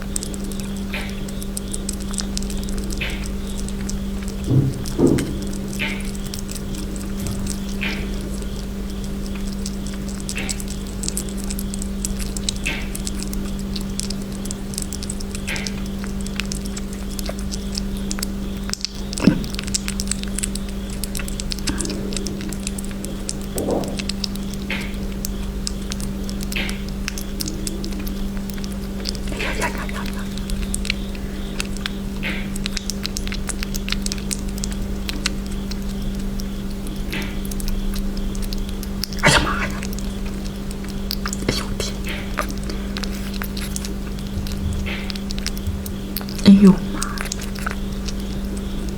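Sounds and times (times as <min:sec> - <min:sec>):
small animal chewing and crunching: 0:00.0 - 0:48.9
steady electrical hum: 0:00.0 - 0:48.9.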